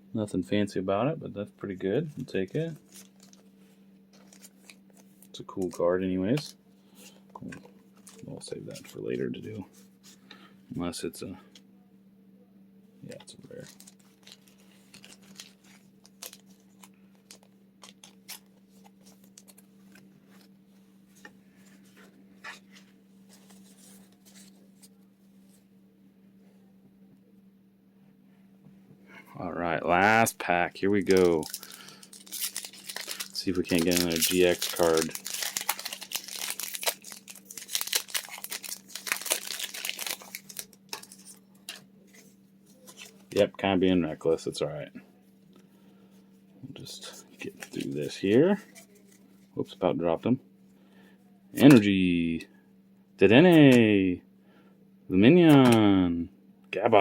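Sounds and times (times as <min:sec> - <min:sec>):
steady low hum: 0:00.0 - 0:57.0
cards and wrappers rustling: 0:02.1 - 0:10.2, 0:13.1 - 0:20.5, 0:21.1 - 0:25.6, 0:30.0 - 0:44.9, 0:46.8 - 0:49.6, 0:51.6 - 0:51.9.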